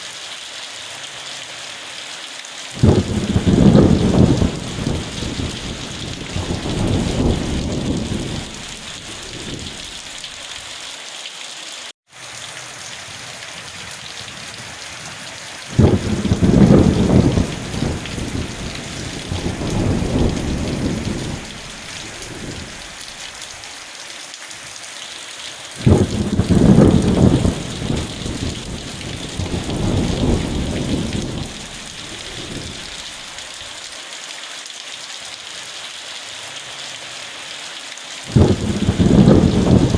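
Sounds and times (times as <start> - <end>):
heavy rain hissing: 0.0 - 11.0, 11.6 - 34.3, 35.4 - 39.9
thunder rolling: 2.8 - 10.2, 15.7 - 22.9, 25.8 - 33.3, 38.3 - 39.9.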